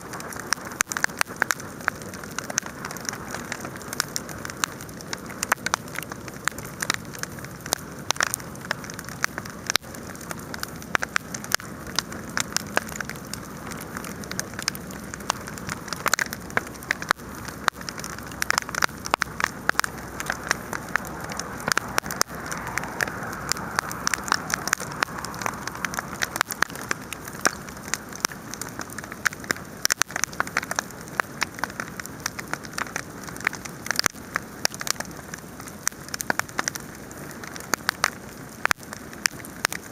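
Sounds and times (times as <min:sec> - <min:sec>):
fire hissing: 0:00.0 - 0:29.8
campfire crackling and popping: 0:00.0 - 0:39.9.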